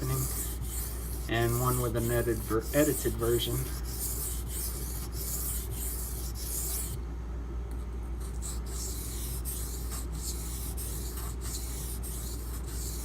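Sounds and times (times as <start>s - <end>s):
knife scraping on whetstone: 0.0s - 7.0s
steady low hum: 0.0s - 13.0s.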